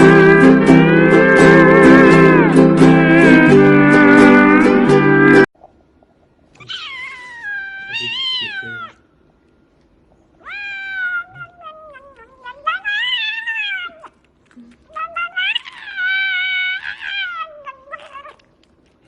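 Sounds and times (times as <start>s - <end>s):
cat meowing: 6.6s - 9.0s, 10.4s - 14.2s, 14.9s - 18.6s.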